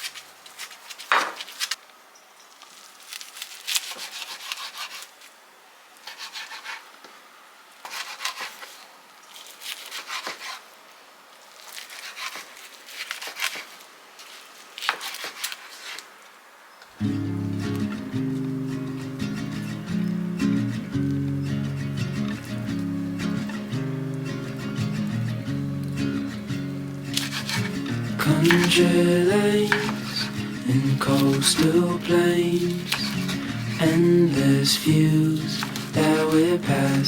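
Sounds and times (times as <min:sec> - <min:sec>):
rubbing scraping strokes: 0:27.1 - 0:37.0.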